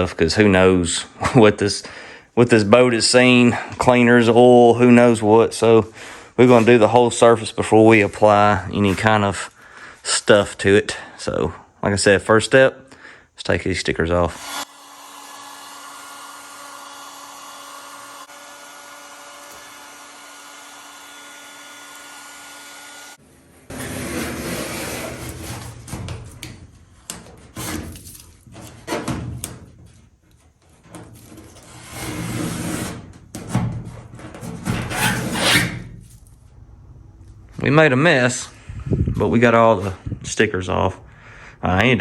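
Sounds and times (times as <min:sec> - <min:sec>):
heat gun blowing: 0:14.3 - 0:23.2
razor blade scraping metal: 0:34.8 - 0:35.9.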